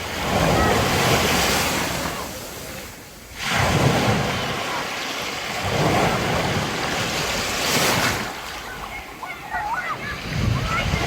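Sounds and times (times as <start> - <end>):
sea waves breaking: 0.0 - 11.0.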